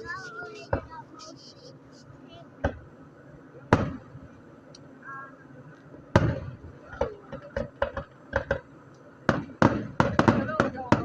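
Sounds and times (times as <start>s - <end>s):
fireworks booming: 0.0s - 1.7s, 2.5s - 3.0s, 3.6s - 4.4s, 5.9s - 11.0s
fireworks crackling pops: 0.0s - 2.9s, 3.7s - 4.9s, 5.7s - 11.0s.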